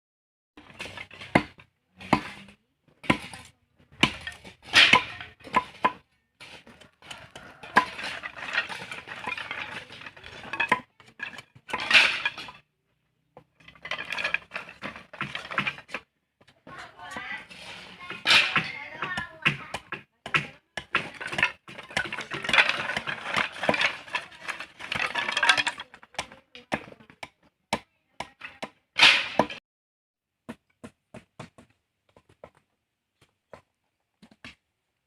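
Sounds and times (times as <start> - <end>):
tools scraping gravel: 0.6 - 12.7, 13.5 - 27.1, 28.4 - 29.6.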